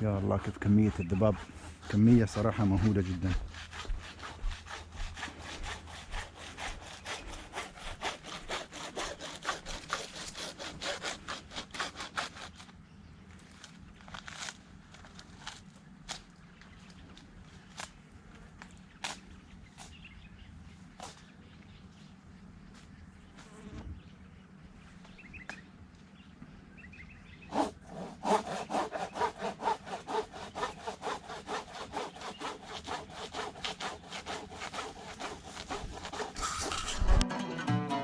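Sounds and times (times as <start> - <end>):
saw cutting wood: 0.0 - 12.7, 27.5 - 37.2
faint footsteps: 1.3 - 8.5.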